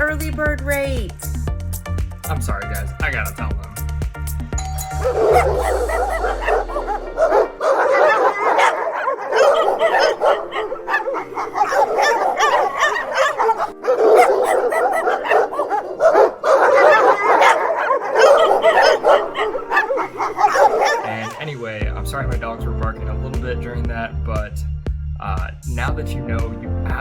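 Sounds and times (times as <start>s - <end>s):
background music: 0.0s - 27.0s
dogs barking and yipping: 4.8s - 21.6s.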